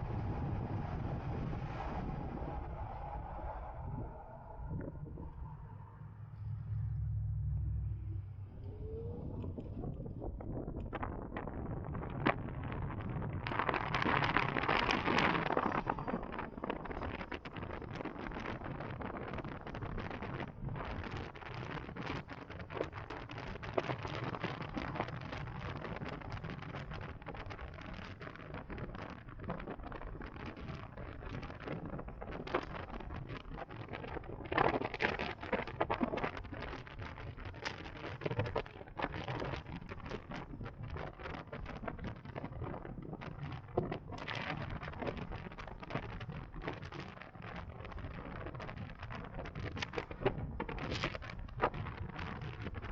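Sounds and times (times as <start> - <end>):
low road rumble: 0.0 - 52.9
wind buffeting microphone: 0.0 - 52.9.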